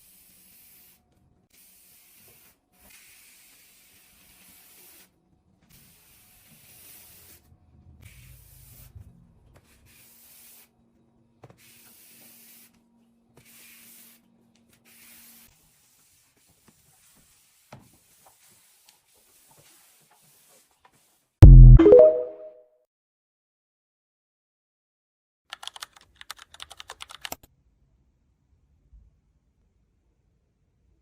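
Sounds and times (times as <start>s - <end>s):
small clicks: 25.5s - 27.5s.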